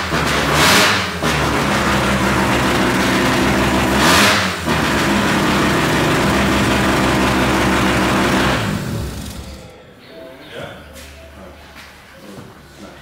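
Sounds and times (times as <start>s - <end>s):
race car engine idling: 0.0s - 9.6s.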